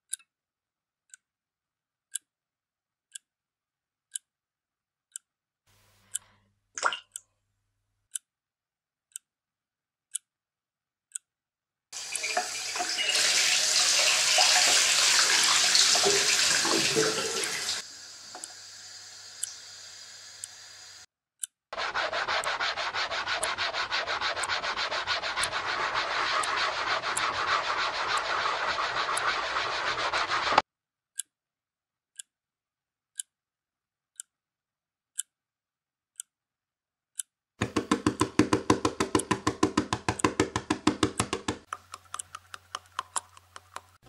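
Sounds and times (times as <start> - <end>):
sharp ticking: 18.3 - 30.6, 38.0 - 44.0
fingernails scratching skin: 21.8 - 30.6
hands rubbing skin: 21.8 - 30.6, 37.6 - 44.0.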